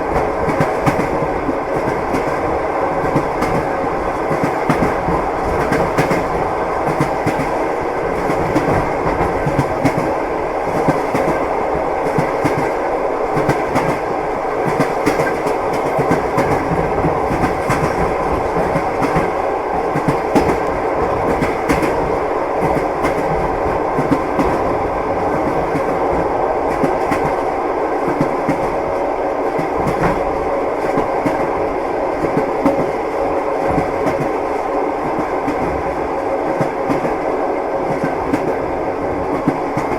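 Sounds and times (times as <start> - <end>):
train wheels clattering over rail joints: 14.6 - 24.7.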